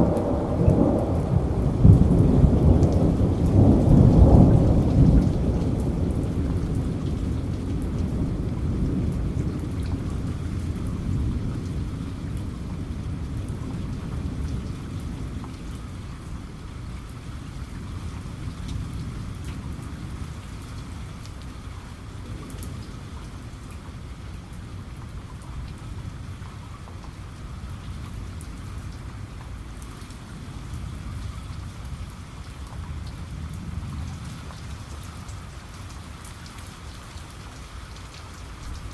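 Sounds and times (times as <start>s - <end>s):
thunder rumbling: 0.0s - 16.6s
steady rain: 0.0s - 38.9s.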